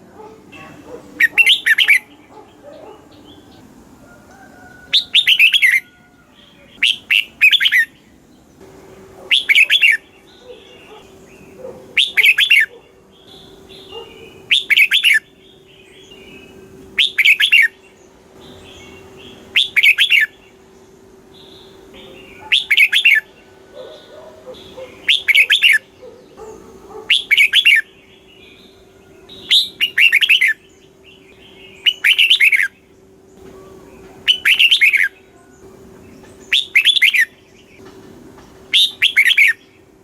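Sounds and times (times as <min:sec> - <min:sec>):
bird whistled song phrase: 0:18.9 - 0:20.4, 0:33.4 - 0:35.6, 0:36.5 - 0:37.3.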